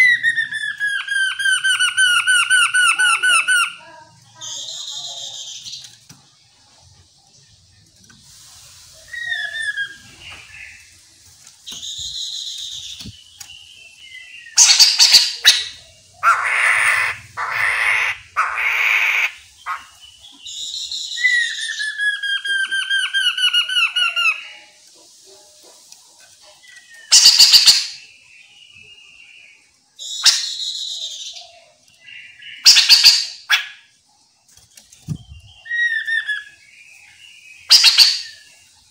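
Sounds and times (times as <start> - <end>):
bird calling: 0.0 - 5.9, 8.9 - 25.9, 35.0 - 36.7, 37.6 - 38.7.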